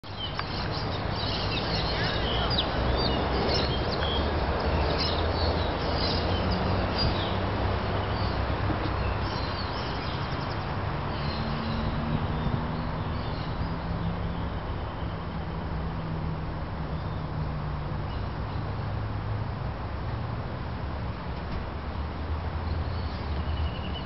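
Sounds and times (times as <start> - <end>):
small birds chirping: 0.0 - 15.3.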